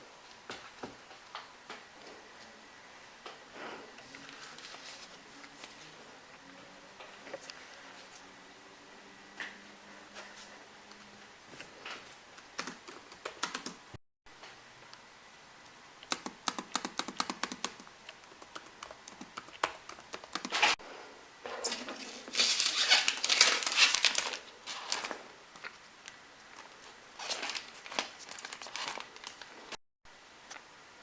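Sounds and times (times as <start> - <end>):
laptop keyboard typing: 12.6 - 13.9, 16.0 - 20.8.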